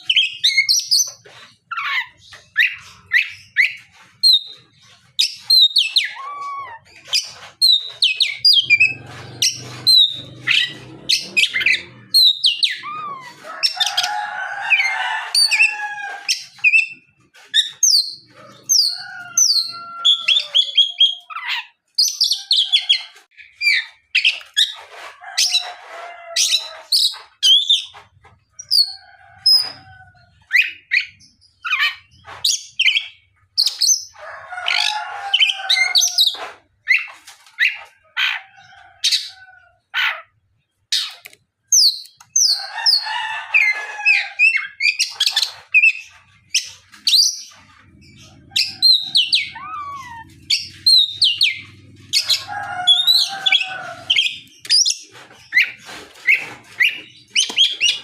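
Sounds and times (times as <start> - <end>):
bird chattering: 44.4 - 58.0.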